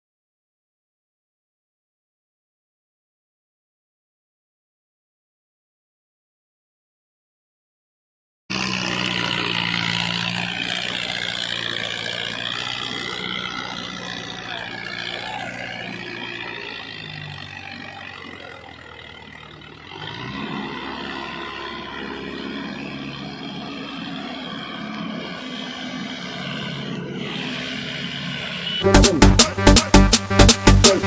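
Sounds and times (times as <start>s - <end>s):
tractor engine running: 8.5s - 31.0s.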